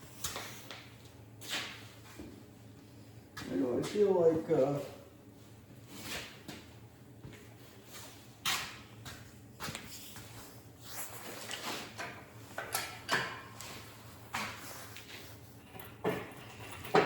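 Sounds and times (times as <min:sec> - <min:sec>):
metal parts knocking and scraping: 0:15.6 - 0:17.0.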